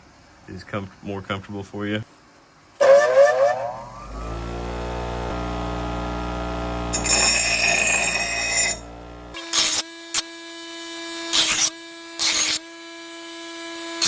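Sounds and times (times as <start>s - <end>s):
electric grinder motor whine: 2.8s - 14.0s.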